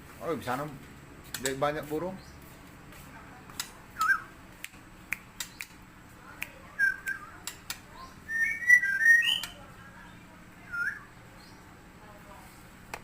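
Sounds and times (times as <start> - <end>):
songbird singing whistled notes: 4.0 - 4.4, 6.7 - 11.7.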